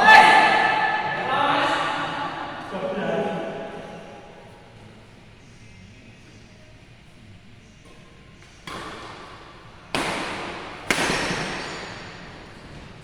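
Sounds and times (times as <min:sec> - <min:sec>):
racket hitting shuttlecock: 0:07.8 - 0:12.9.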